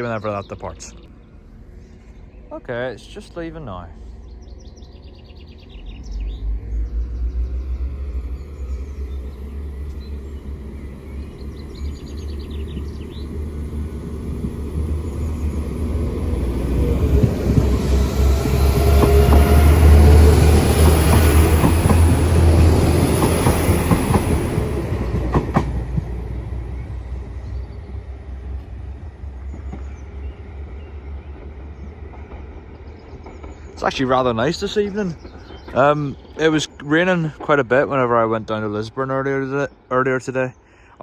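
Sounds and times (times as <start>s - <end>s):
diesel train passing: 0.0s - 41.0s
wheels clicking over rail joints: 12.6s - 26.3s.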